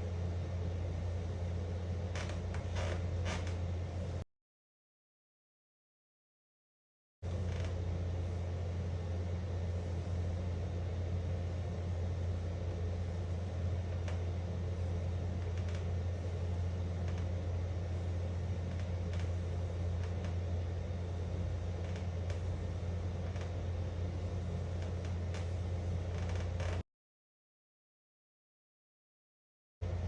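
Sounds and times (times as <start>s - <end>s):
steady low hum: 0.0s - 4.2s, 7.2s - 26.8s.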